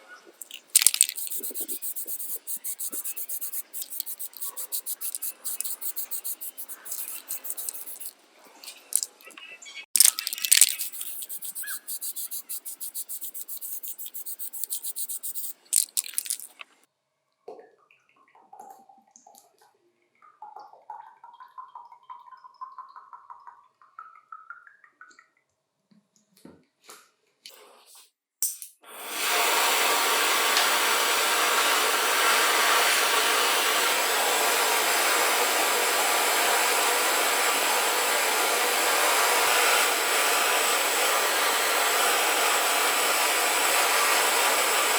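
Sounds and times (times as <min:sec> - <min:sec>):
handling clicks and scrapes: 0:00.4 - 0:09.3, 0:10.0 - 0:16.7.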